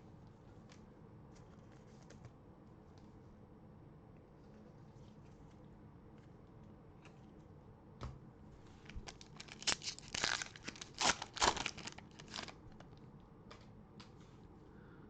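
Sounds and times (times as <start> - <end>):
plastic wrapper tearing and crinkling: 8.8 - 12.8.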